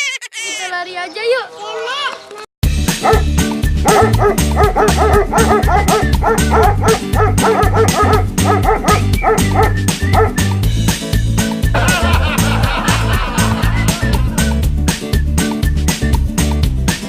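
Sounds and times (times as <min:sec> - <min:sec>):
upbeat background music: 0:02.6 - 0:17.0
dog barking rapidly: 0:03.0 - 0:10.4.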